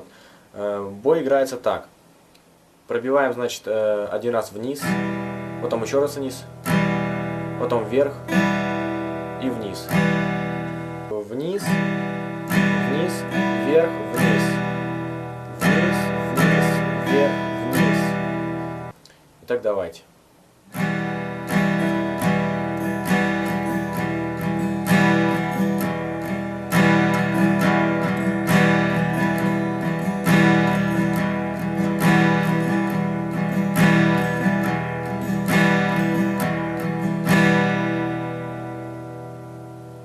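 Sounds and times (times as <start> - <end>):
acoustic guitar strumming: 4.2 - 19.0, 20.6 - 40.0.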